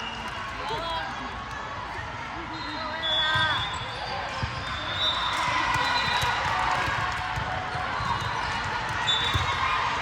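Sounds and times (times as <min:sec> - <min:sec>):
hubbub of voices: 0:00.0 - 0:10.0
basketball bouncing on gym floor: 0:05.7 - 0:09.6.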